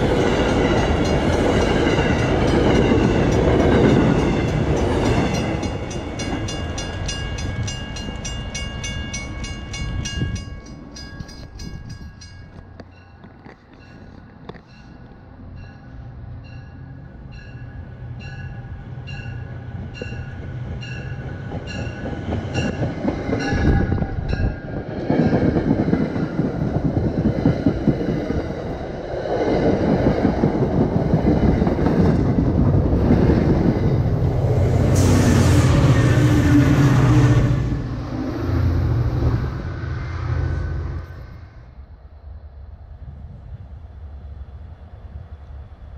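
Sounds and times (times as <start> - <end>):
train bell ringing: 0.0 - 24.7
diesel locomotive passing: 0.0 - 45.9
train coaches rumbling on rails: 0.0 - 45.9.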